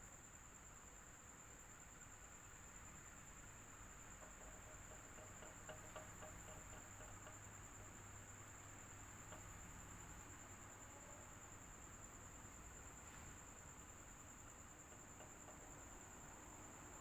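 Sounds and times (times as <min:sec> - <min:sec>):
faint ticks: 0:04.0 - 0:17.0.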